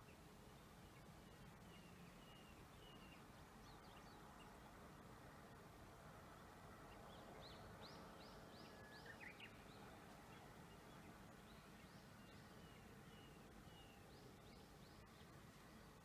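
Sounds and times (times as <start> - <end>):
faint bird chirps: 0.0 - 4.6
low outdoor background hush: 0.0 - 16.0.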